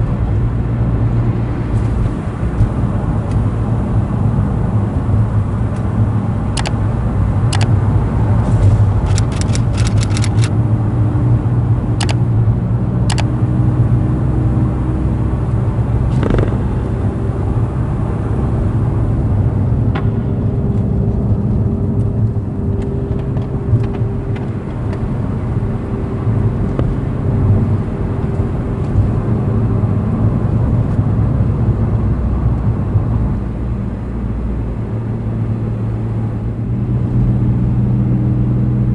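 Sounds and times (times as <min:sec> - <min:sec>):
car engine running: 0:00.0 - 0:38.9
sharp clicks: 0:06.6 - 0:06.8, 0:07.5 - 0:07.8, 0:09.0 - 0:10.5, 0:12.0 - 0:12.2.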